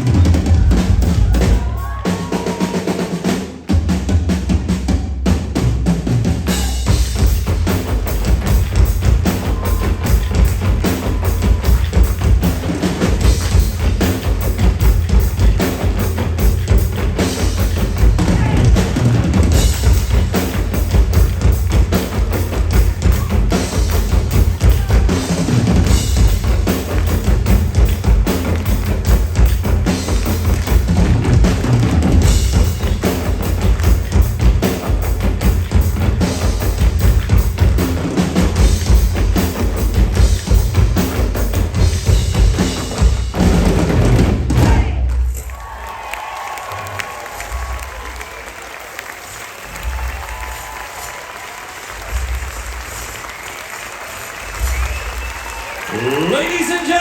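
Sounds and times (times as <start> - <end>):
bass drum: 0.0 - 2.6, 3.7 - 45.4
snare drum: 0.0 - 45.8, 49.3 - 57.0.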